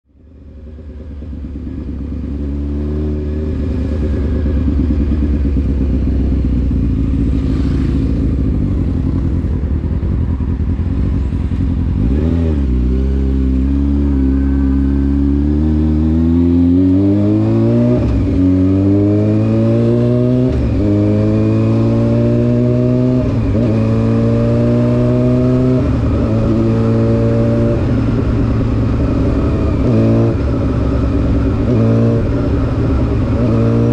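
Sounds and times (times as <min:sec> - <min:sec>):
motorcycle engine accelerating: 0:00.1 - 0:33.9.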